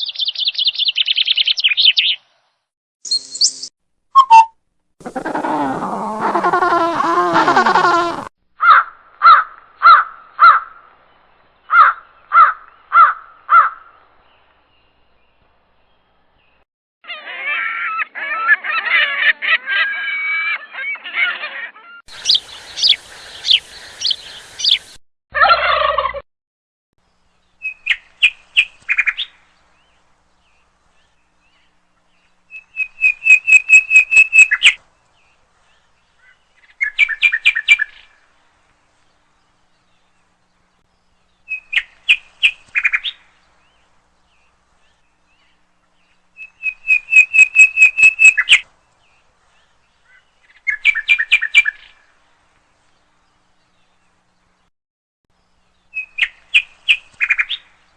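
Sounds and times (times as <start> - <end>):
high whistled bird notes: 3.0 - 4.6, 32.6 - 34.8, 46.4 - 48.6
bird calls: 3.0 - 10.7, 17.1 - 25.0, 46.4 - 48.6
birds chattering: 22.1 - 25.0.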